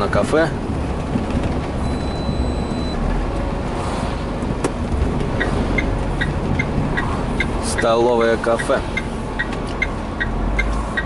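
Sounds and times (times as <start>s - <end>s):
truck engine and road rumble: 0.0s - 11.0s
turn signal ticking: 1.2s - 3.5s, 4.5s - 11.0s.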